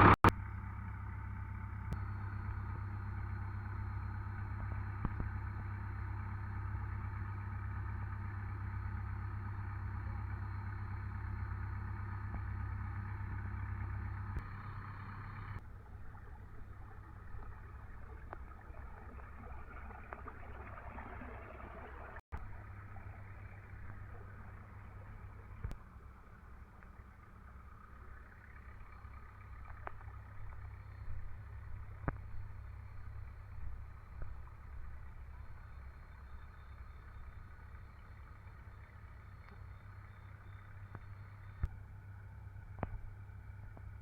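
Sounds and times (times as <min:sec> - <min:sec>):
tractor engine running: 0:00.0 - 0:44.0
faint clicks: 0:22.4 - 0:41.8.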